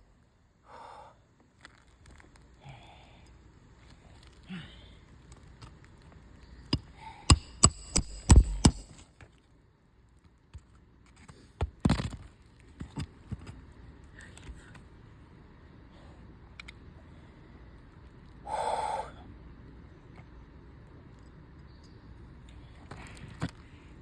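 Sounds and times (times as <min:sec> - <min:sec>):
hammer strikes on roof shingles: 0:06.8 - 0:09.0.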